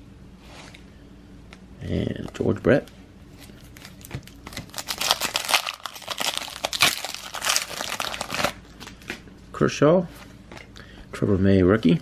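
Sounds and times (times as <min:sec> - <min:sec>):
foil wrapper tearing and crinkling: 0:03.6 - 0:09.1.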